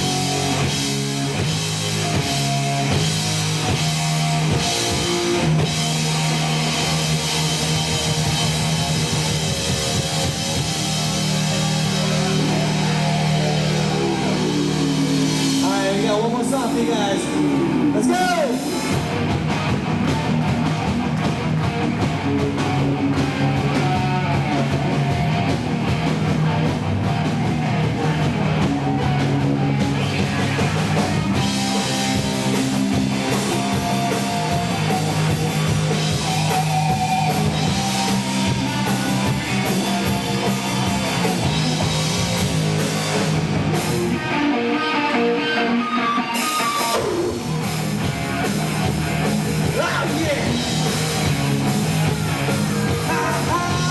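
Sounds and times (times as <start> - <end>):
distorted electric guitar: 0.0 - 53.9
live rock band playing: 0.0 - 53.9.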